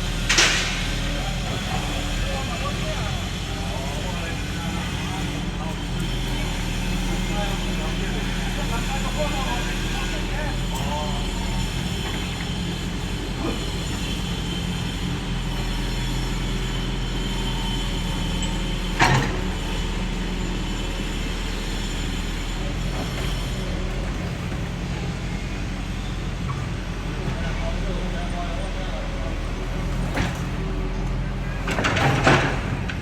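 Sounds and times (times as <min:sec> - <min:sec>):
bulldozer diesel engine running: 0:00.0 - 0:33.0.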